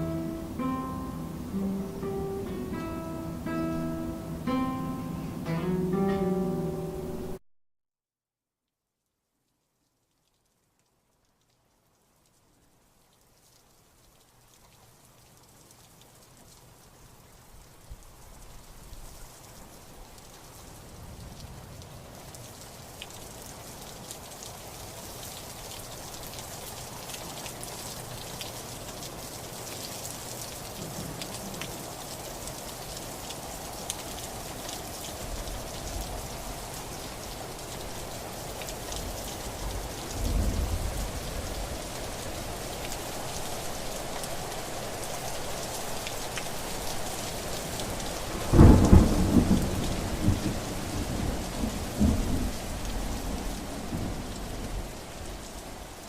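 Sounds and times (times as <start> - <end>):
steady rain: 0.0 - 7.4, 9.0 - 56.0
thunder rumble: 39.7 - 41.9, 48.3 - 54.9
thunder crack: 40.2 - 41.2.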